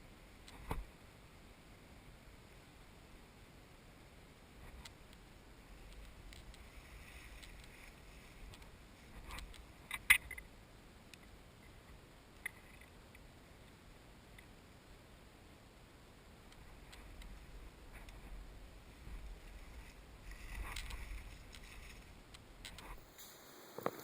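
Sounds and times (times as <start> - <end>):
light rustling: 4.6 - 10.5, 16.6 - 24.0.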